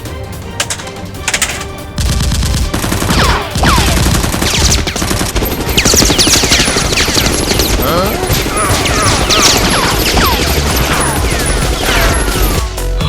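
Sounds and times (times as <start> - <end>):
rapid automatic gunfire: 2.0 - 12.8.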